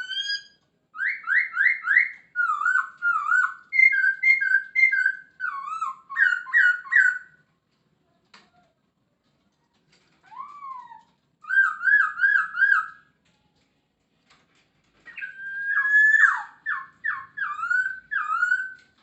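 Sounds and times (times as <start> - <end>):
bird whistling song: 0.0 - 7.4, 10.2 - 13.1, 15.1 - 19.0.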